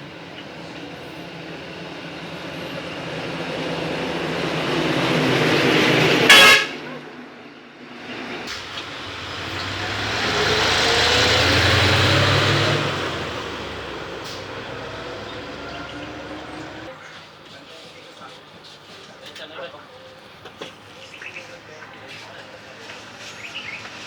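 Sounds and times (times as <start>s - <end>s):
heavy truck passing: 0.0s - 17.4s
vehicle approaching: 0.0s - 17.4s
truck horn blast: 6.2s - 7.1s.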